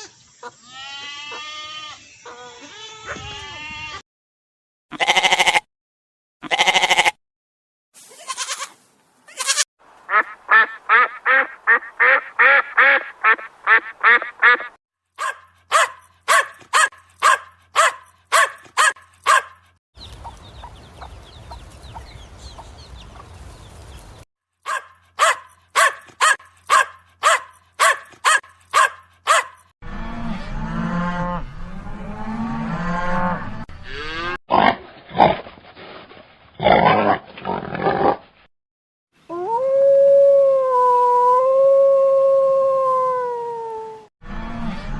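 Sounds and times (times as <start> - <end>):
domestic waterfowl calling: 10.1 - 17.4.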